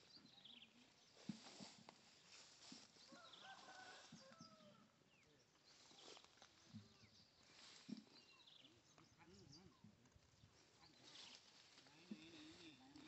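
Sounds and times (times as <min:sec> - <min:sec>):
leaves rustling: 0:01.1 - 0:04.4, 0:05.7 - 0:08.4, 0:10.5 - 0:13.0.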